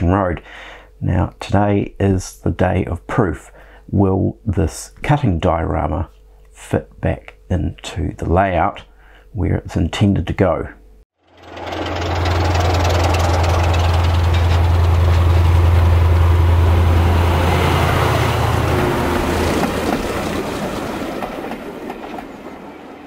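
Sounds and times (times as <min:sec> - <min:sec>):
diesel train engine drone: 0:10.8 - 0:23.0
rushing rail noise: 0:11.3 - 0:23.0.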